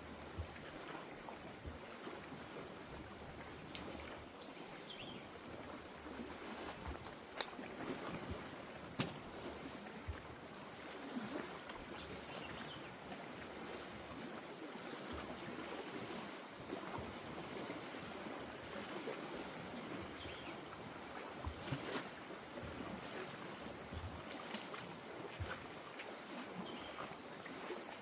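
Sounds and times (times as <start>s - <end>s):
lake water lapping: 0.0s - 28.0s.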